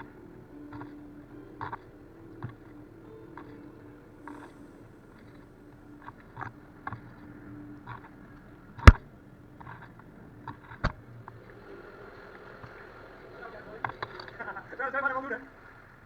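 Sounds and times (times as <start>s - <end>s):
sharp knocks on kayak: 8.8s - 9.0s.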